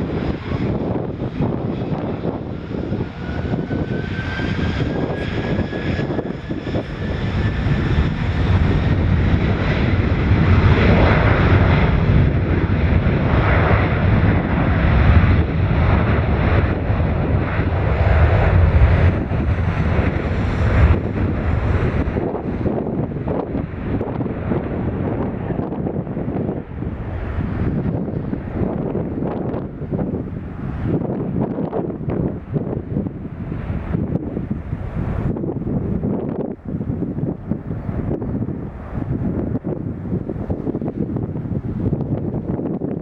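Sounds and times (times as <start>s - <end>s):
jet engines spooling up: 0.0s - 14.5s.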